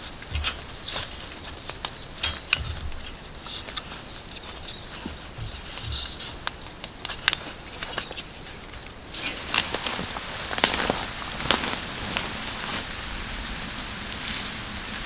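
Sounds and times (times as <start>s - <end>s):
small bird chirping: 0.3s - 12.5s
soft low thumps: 2.5s - 6.6s.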